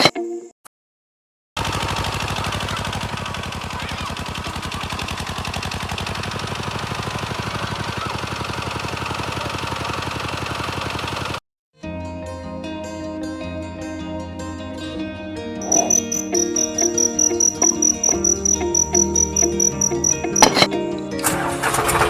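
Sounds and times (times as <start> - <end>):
small engine running: 1.6 - 11.4, 15.6 - 22.0.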